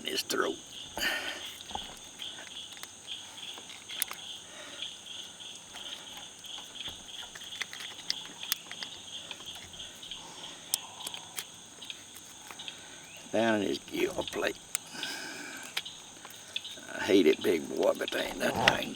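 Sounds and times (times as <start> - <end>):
insects chirping: 0.0 - 18.9
sharp clicks: 1.0 - 18.9.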